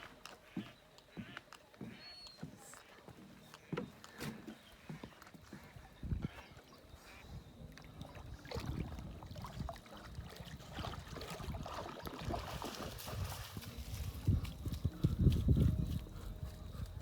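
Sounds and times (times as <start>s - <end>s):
footsteps crunching on trail: 0.0s - 6.4s, 12.5s - 17.0s.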